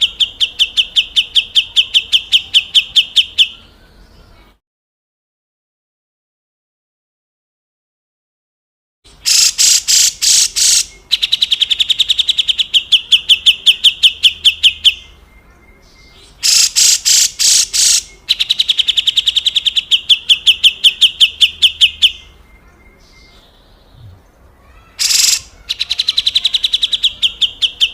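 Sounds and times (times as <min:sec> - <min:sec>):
bird chattering notes: 0:09.1 - 0:15.2, 0:15.8 - 0:27.9
bulbul rasping call: 0:09.1 - 0:15.2, 0:16.0 - 0:22.4, 0:25.0 - 0:27.9.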